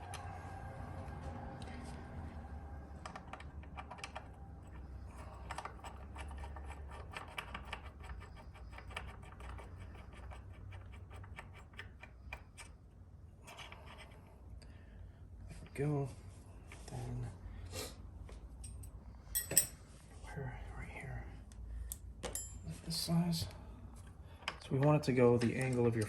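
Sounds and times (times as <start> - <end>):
faint low hum: 0.0 - 26.0
hand tools clicking and tapping: 3.1 - 12.7.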